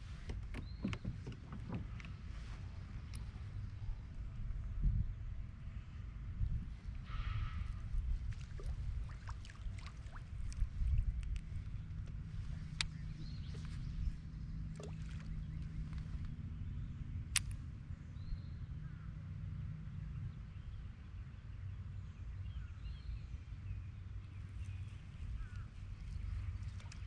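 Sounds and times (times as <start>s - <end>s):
low ambient rumble: 0.0s - 27.0s
sharp clicks: 17.3s - 17.6s.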